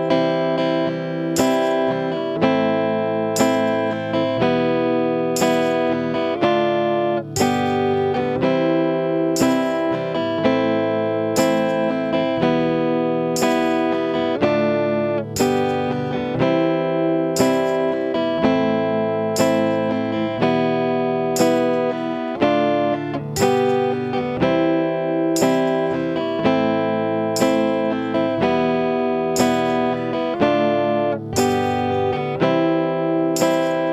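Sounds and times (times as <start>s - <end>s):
guitar strumming chords: 0.0s - 33.9s.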